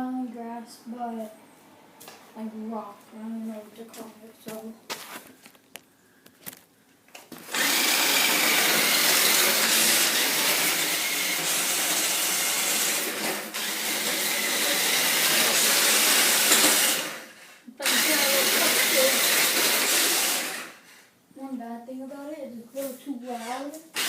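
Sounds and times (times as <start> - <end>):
toy car electric motor running: 7.5 - 20.9, 23.3 - 24.0.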